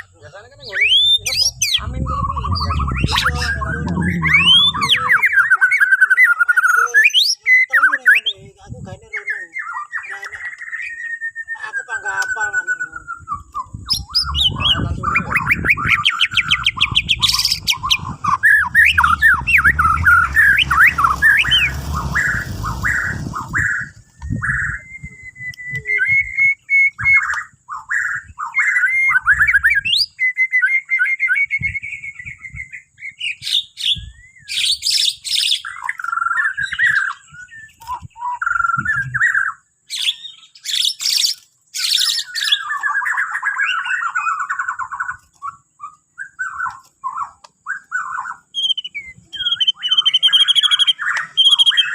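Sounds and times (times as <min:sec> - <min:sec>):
bird singing whistled song: 0:00.6 - 0:51.9
low rumble: 0:01.2 - 0:05.4, 0:13.8 - 0:25.6
sharp high bird chirps: 0:09.2 - 0:31.3, 0:31.9 - 0:51.9.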